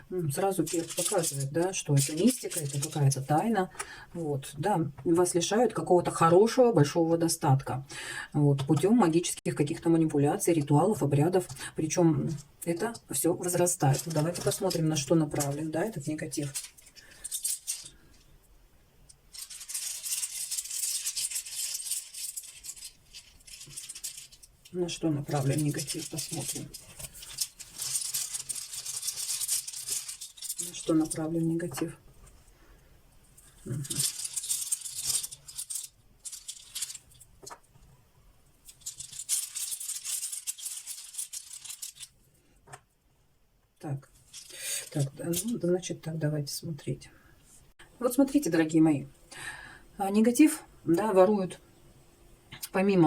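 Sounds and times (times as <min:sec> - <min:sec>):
runes rattling in a pouch: 0:00.6 - 0:03.1, 0:13.8 - 0:18.0, 0:25.3 - 0:31.2, 0:33.6 - 0:37.3, 0:38.7 - 0:42.2, 0:44.2 - 0:45.6
stones rattling and clicking: 0:33.8 - 0:37.7, 0:38.7 - 0:42.1.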